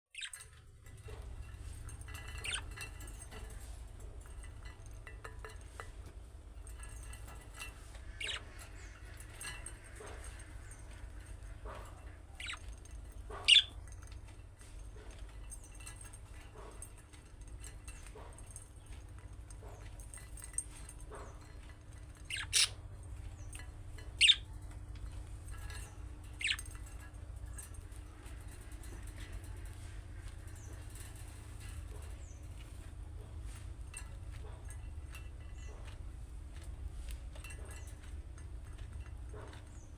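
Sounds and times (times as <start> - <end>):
budgerigars chirping: 8.1 - 8.6, 13.4 - 13.7, 22.3 - 22.8, 24.2 - 24.4, 26.4 - 26.6
budgerigar chirping: 13.5 - 13.7, 22.3 - 22.8.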